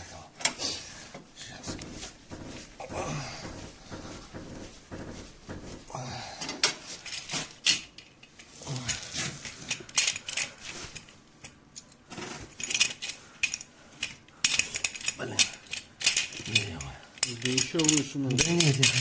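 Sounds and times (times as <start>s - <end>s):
metal tools clinking and clanking: 6.4s - 19.0s.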